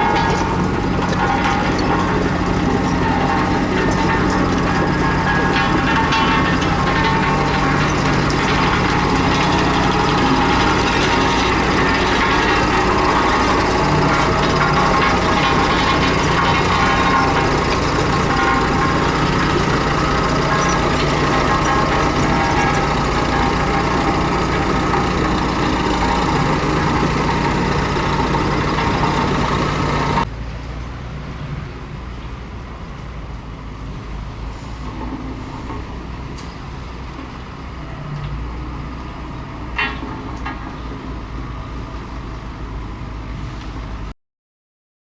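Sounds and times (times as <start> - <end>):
bulldozer diesel engine running: 0.0 - 30.3
sharp clack: 0.0 - 30.3.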